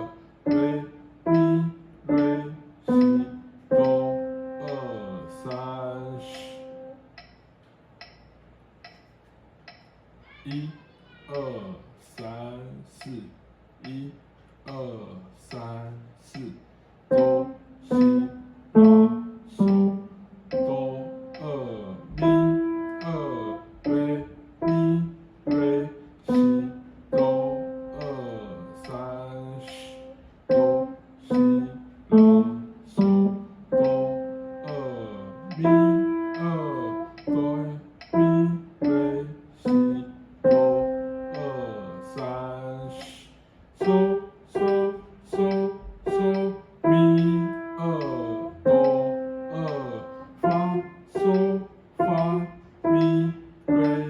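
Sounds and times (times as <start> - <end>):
piano playing: 0.0 - 7.0, 17.1 - 43.0, 43.8 - 54.0.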